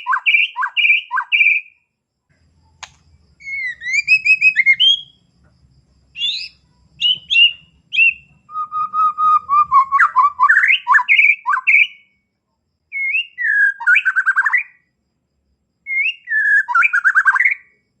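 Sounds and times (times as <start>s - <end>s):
bird singing whistles and trills: 0.0s - 1.8s, 3.4s - 5.3s, 6.2s - 12.2s, 12.9s - 14.9s, 15.9s - 17.8s.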